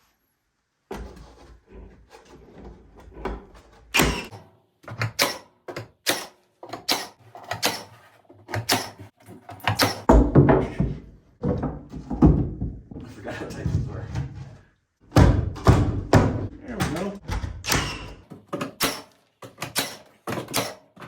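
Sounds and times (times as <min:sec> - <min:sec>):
wooden boards knocking: 0:09.6 - 0:13.0, 0:15.1 - 0:18.8.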